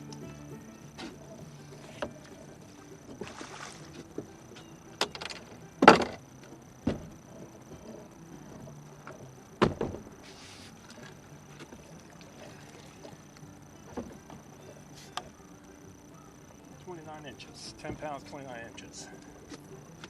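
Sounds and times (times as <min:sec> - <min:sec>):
knocks and thumps in a boat: 0:00.9 - 0:10.2, 0:10.8 - 0:15.3, 0:17.6 - 0:19.5.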